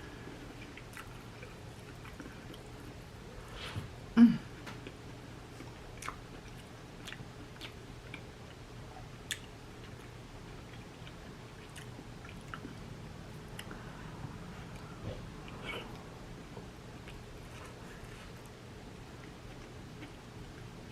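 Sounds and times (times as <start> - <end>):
person chewing: 0.5 - 3.0, 4.8 - 8.6, 9.2 - 12.8, 13.4 - 13.8, 17.0 - 20.7.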